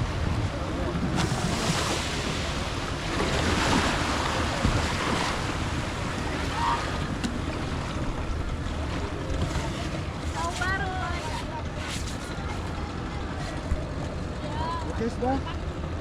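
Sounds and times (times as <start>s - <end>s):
sea surf: 0.0s - 16.0s.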